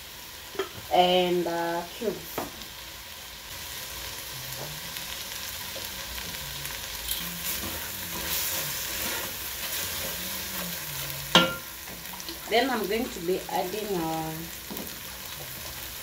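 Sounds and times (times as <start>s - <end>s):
sauce sizzling in a pot: 0.0s - 16.0s
spatula stirring and scraping: 7.1s - 12.5s.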